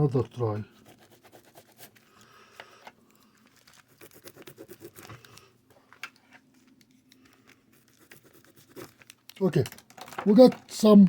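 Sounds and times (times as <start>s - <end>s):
pen scribbling on paper: 0.7s - 1.9s, 3.9s - 5.0s, 7.8s - 8.9s.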